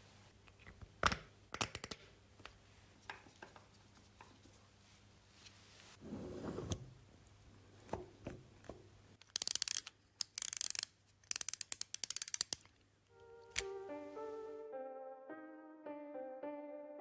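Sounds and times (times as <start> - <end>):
ratcheting mechanism clicking: 9.2 - 12.8
piano music: 13.1 - 17.0.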